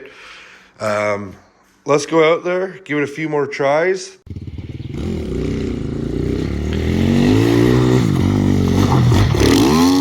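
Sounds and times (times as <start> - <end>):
dirt bike engine revving: 4.3 - 10.0.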